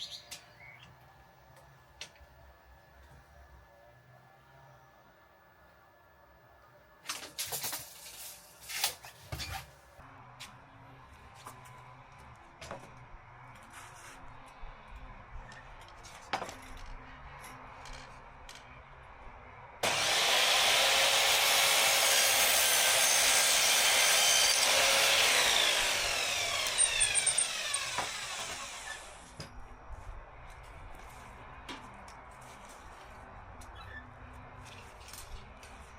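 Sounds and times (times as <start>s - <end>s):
electric power saw cutting wood: 19.8s - 29.4s
saw blade spinning down whine: 19.8s - 29.4s.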